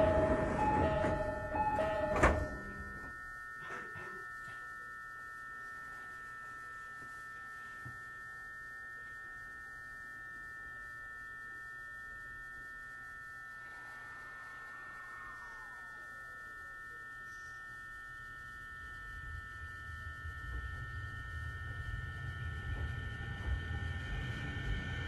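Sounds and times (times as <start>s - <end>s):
train door chime: 0.0s - 4.8s
electrical whine: 0.0s - 25.0s
train doors thunking shut: 0.1s - 2.7s.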